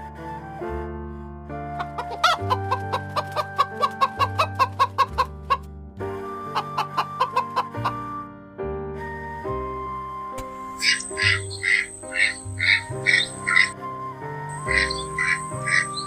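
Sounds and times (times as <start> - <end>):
background music with held notes: 0.0 - 16.0
chicken clucking: 10.8 - 13.7, 14.8 - 16.0.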